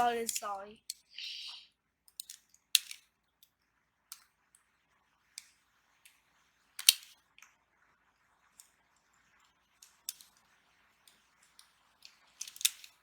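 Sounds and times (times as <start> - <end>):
plastic parts clicking: 2.1 - 3.1, 6.8 - 7.1, 9.8 - 10.4, 11.1 - 13.0.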